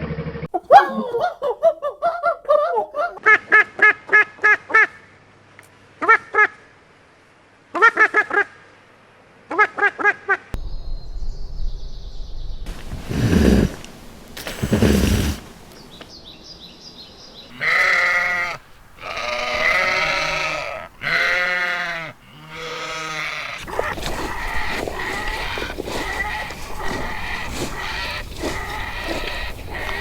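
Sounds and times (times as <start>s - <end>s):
goats or sheep bleating: 17.5s - 30.0s.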